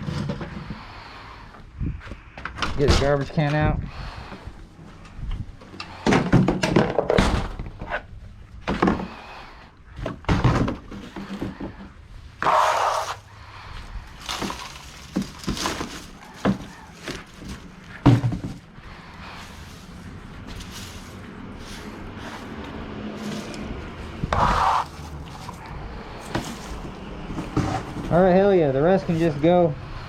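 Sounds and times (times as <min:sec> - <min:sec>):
garbage can knocks and thuds: 0:10.0 - 0:11.7, 0:14.3 - 0:18.7
scraping rush: 0:11.1 - 0:28.4.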